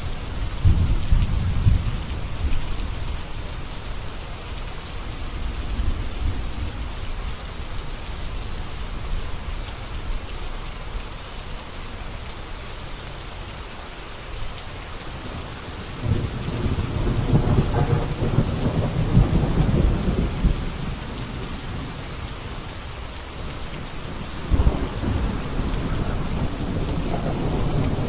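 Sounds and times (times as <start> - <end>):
steady rain: 0.0 - 28.0
thunder rumbling: 0.4 - 3.4, 15.1 - 28.0
sharp thunder clap: 16.0 - 22.0, 23.4 - 28.0.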